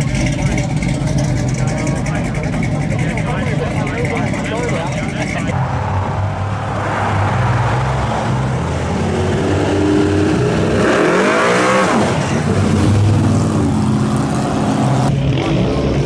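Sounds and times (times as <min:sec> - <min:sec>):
car engine revving past: 0:05.5 - 0:15.7.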